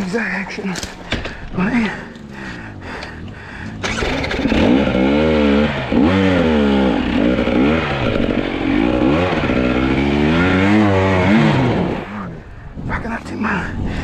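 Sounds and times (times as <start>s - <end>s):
dirt bike engine revving: 1.6s - 12.4s.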